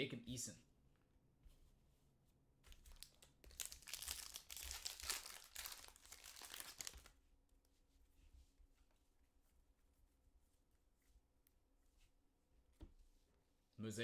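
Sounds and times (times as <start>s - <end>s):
plastic wrapper tearing and crinkling: 2.7s - 7.2s.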